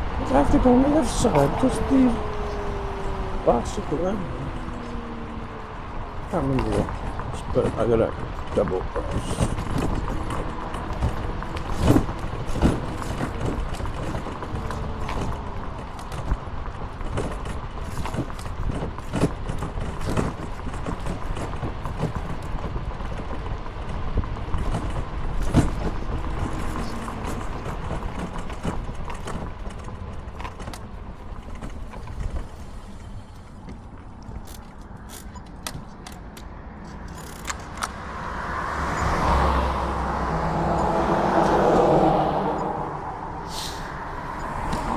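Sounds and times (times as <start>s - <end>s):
car approaching: 0.0s - 44.9s
light rattles and knocks: 0.0s - 44.9s
road and wind noise: 0.0s - 44.9s.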